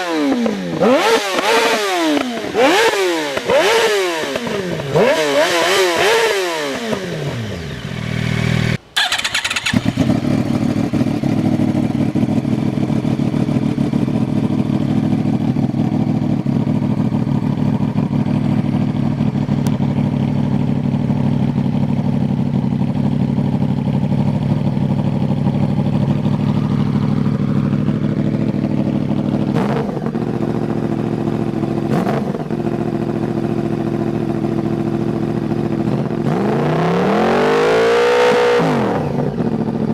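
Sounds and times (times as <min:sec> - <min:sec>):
motorcycle engine revving: 0:00.0 - 0:39.9
motorcycle engine idling: 0:06.0 - 0:36.3, 0:39.2 - 0:39.9.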